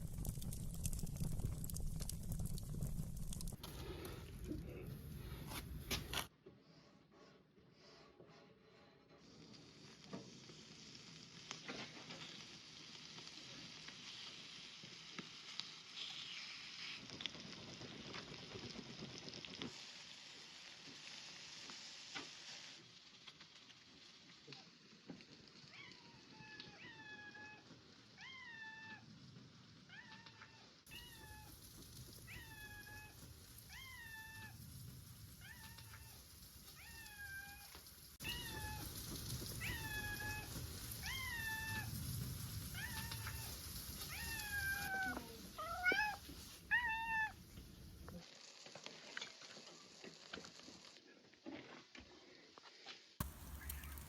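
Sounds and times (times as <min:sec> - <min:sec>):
cat meowing: 0:25.7 - 0:29.0, 0:29.9 - 0:31.6, 0:32.3 - 0:34.6, 0:36.8 - 0:42.0, 0:42.7 - 0:47.4.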